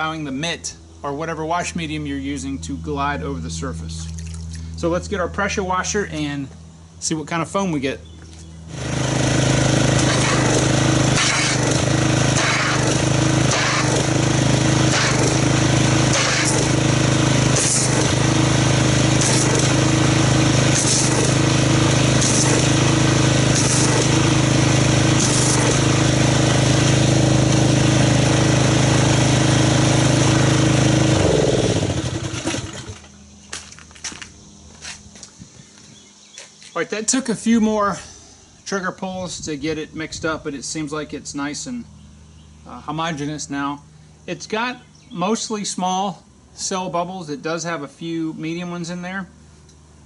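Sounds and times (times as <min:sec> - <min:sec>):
pressure washer running: 0:08.6 - 0:35.3.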